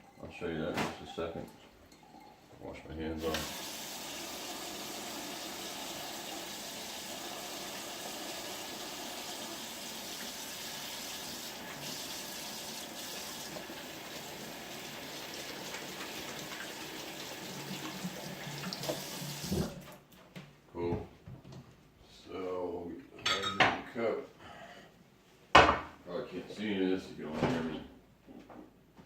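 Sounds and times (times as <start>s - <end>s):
tap water running into sink: 3.2s - 20.0s.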